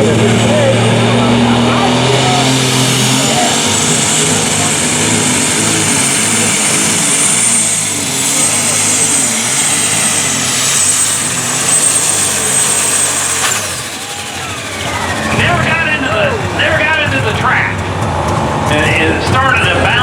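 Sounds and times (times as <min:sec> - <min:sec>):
tractor engine under load: 0:00.0 - 0:20.0
turbocharger whine: 0:00.0 - 0:20.0.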